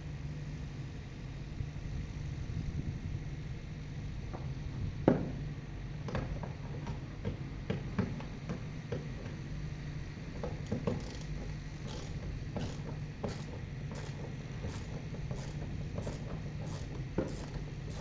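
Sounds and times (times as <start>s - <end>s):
steady low hum: 0.0s - 18.0s
sharp clicks and knocks: 10.4s - 18.0s.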